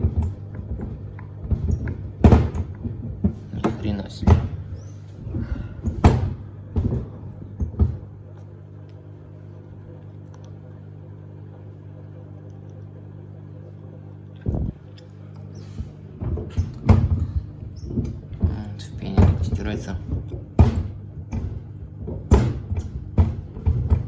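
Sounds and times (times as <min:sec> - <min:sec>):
shoes thumping in drum: 0:00.0 - 0:08.2, 0:15.8 - 0:24.0
washing machine drum motor hum: 0:00.0 - 0:24.0.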